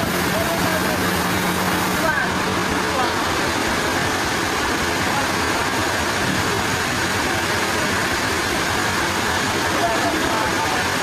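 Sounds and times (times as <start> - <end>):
sawmill machinery running: 0.0 - 11.0.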